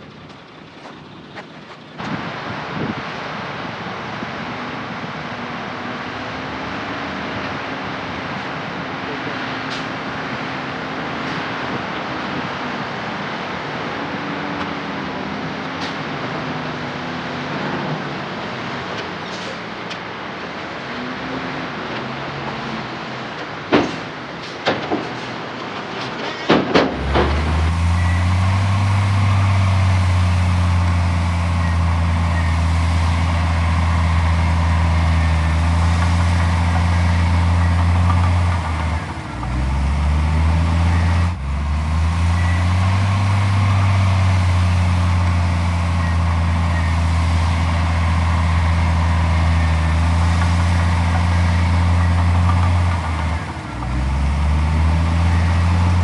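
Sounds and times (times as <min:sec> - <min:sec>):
heavy diesel engine running: 0:26.9 - 0:56.0.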